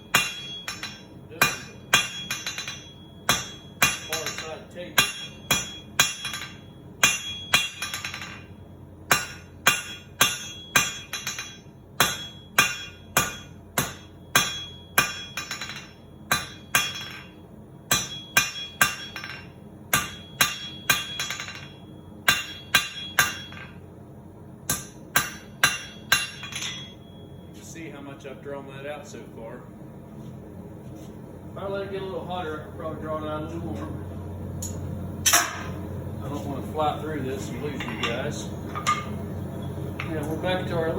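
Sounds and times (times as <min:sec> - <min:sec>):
hammer striking steel on anvil: 0:00.0 - 0:23.8, 0:24.7 - 0:27.4, 0:34.6 - 0:36.5, 0:37.6 - 0:39.2.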